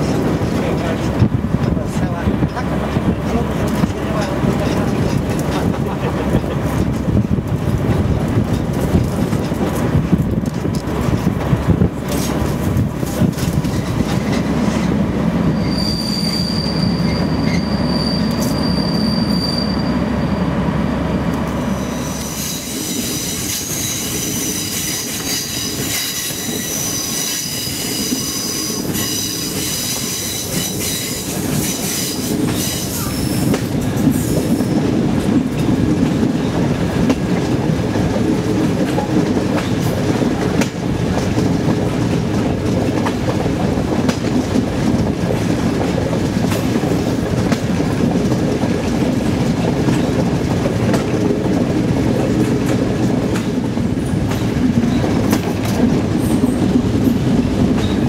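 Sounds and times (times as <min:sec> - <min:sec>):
train rumble and rail clatter: 0:00.0 - 0:58.0
wheels squealing: 0:15.5 - 0:20.5.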